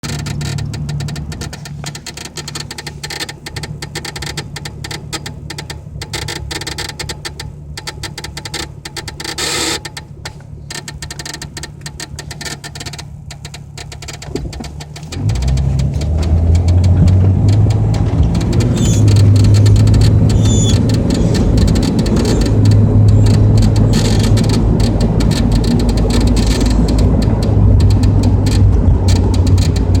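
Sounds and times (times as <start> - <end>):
low hum with fine ticking: 0.0 - 30.0
loud low rumble: 15.1 - 30.0.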